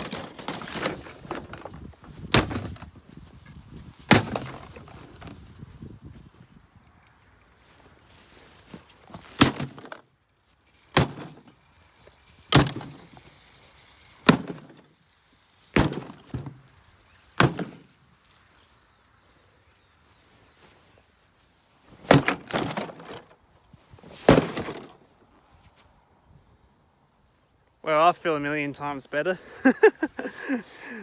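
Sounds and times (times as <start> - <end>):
rattle of breaking parts: 0.0 - 2.9, 6.4 - 21.0, 22.0 - 23.4.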